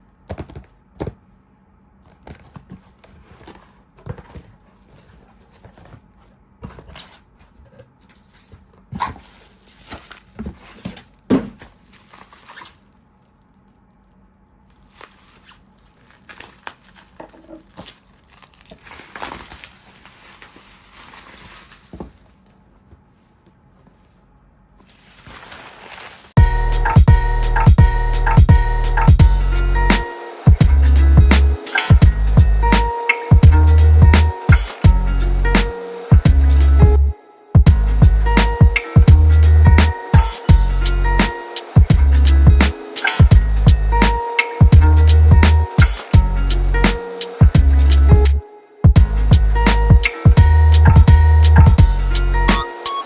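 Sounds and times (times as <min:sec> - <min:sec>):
wrapping crinkling and tearing: 0:08.0 - 0:22.6, 0:24.8 - 0:26.4
music: 0:26.4 - 0:53.0.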